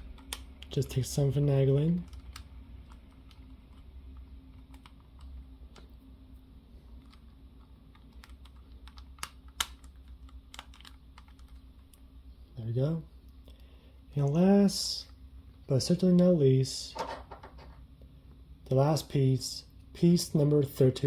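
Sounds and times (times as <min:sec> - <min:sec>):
steady low hum: 0:00.0 - 0:21.0
plastic pieces clicking: 0:07.9 - 0:11.6.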